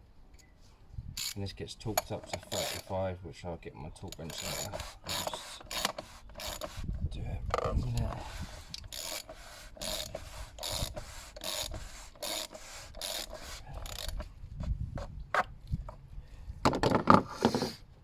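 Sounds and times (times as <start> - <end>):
hand ratchet rasping: 1.2 - 1.4, 2.0 - 3.0, 4.1 - 14.3
tools rattling: 2.0 - 2.9, 4.1 - 6.7.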